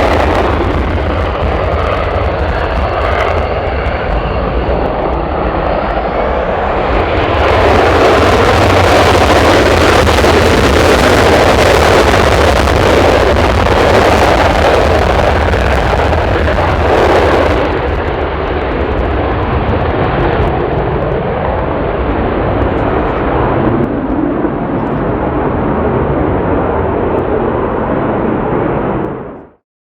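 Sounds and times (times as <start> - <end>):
jet engines roaring: 0.0 - 29.6.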